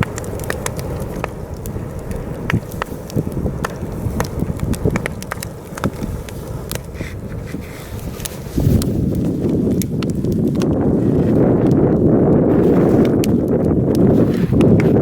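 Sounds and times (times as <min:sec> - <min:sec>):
campfire crackling and popping: 0:00.0 - 0:15.0
wind rumbling on microphone: 0:00.0 - 0:15.0.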